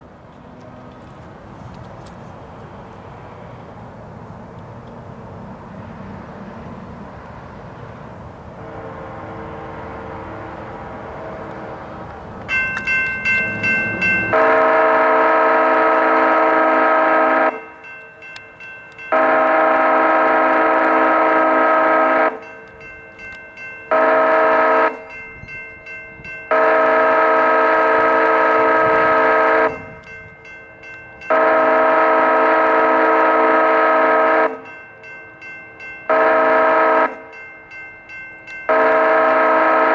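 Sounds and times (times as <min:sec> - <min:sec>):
train rumble: 0:00.0 - 0:39.9
locomotive horn blasts: 0:08.6 - 0:11.8, 0:12.8 - 0:17.7, 0:19.1 - 0:22.5, 0:23.9 - 0:25.1, 0:26.5 - 0:30.1, 0:31.3 - 0:34.7, 0:36.1 - 0:37.3, 0:38.7 - 0:39.9
crossing bell ringing: 0:12.5 - 0:39.9.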